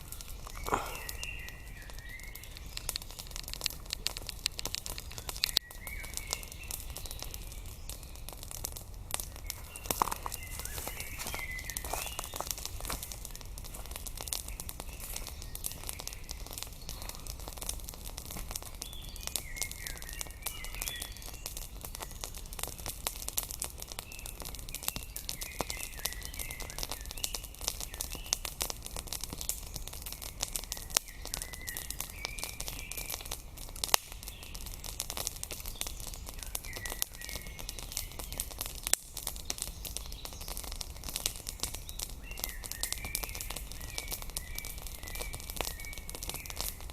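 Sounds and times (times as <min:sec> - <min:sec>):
birds chirping and singing: 0:00.0 - 0:03.7, 0:05.0 - 0:08.3, 0:09.3 - 0:22.4, 0:24.0 - 0:28.5, 0:41.4 - 0:46.8
campfire crackling and snapping: 0:00.0 - 0:46.9.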